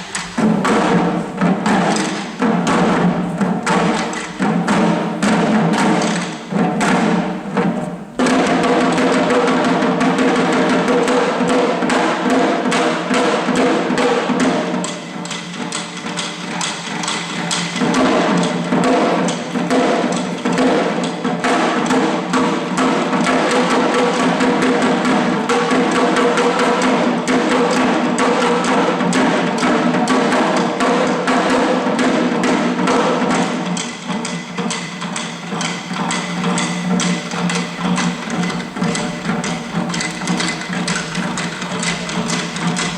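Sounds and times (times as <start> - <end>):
drums beaten in fast rhythm: 0.0 - 42.9
steady held tones: 33.4 - 42.9.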